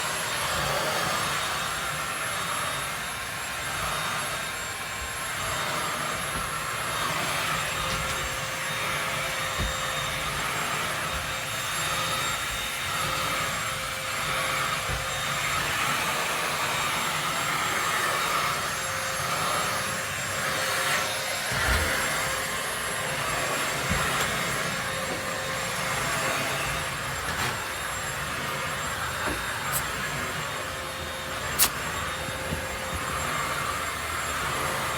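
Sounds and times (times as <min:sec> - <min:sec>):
vacuum cleaner whining drone: 0:00.0 - 0:34.9.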